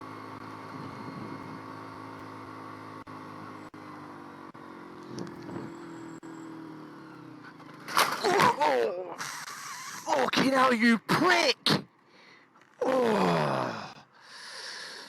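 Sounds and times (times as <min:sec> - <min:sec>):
motorcycle engine running: 0:00.0 - 0:09.9
road and wind noise: 0:00.0 - 0:12.8.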